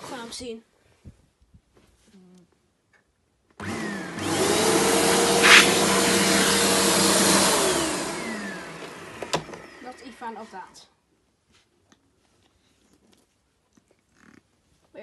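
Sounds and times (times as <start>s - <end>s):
vacuum cleaner hiss: 3.6s - 9.8s
vacuum cleaner motor whine: 3.6s - 10.0s.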